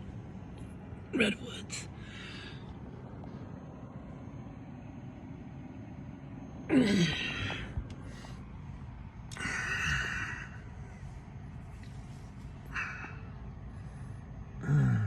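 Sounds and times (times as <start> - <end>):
low background hum: 0.0 - 15.0
man sighing: 6.7 - 8.2.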